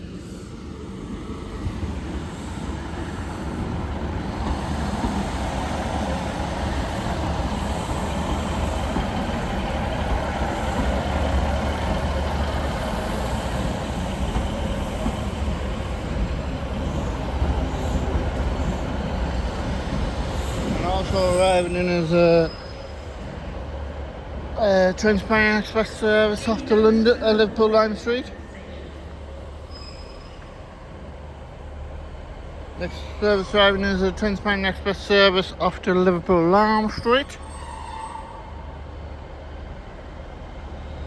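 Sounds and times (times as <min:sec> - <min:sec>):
diesel train engines rumbling: 0:00.0 - 0:41.0.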